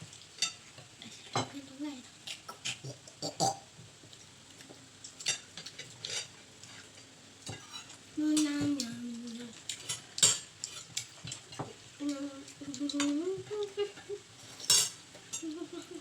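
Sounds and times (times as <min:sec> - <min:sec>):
person humming: 0:08.2 - 0:09.6, 0:12.0 - 0:14.3, 0:15.4 - 0:16.0
cutlery clinking on plate: 0:14.5 - 0:15.4.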